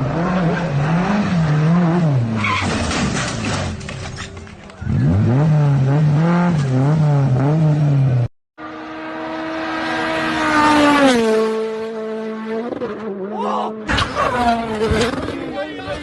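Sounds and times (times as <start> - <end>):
car tyres squealing: 2.2 - 5.3.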